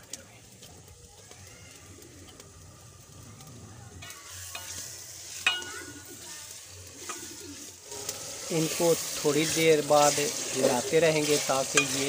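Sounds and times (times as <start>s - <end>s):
food sizzling in a metal pot: 0.0s - 12.0s
ladle stirring: 4.0s - 12.0s.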